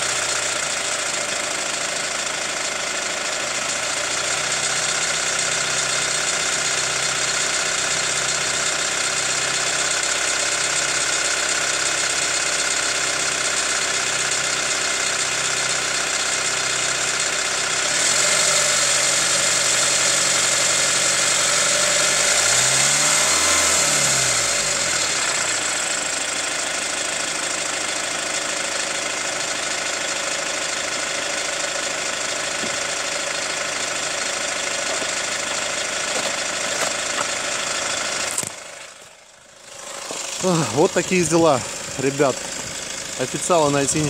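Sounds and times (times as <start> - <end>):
diesel engine idling with a knock: 0.0 - 44.0
engine revving: 3.2 - 26.6, 39.6 - 44.0.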